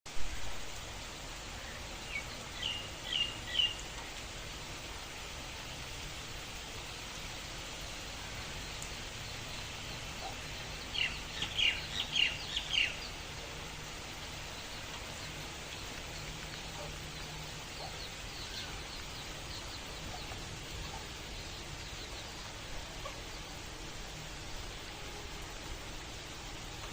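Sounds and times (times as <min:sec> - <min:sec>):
rain hissing: 0:00.1 - 0:26.9
bird chirping: 0:01.6 - 0:04.2, 0:08.3 - 0:23.6.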